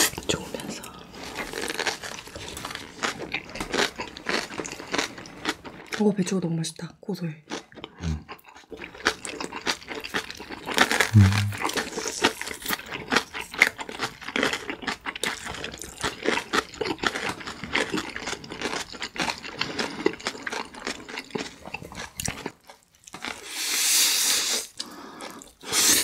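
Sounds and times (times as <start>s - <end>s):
crunchy chewing: 0.0s - 6.0s, 7.5s - 23.6s
wet mouth clicks: 11.1s - 12.4s.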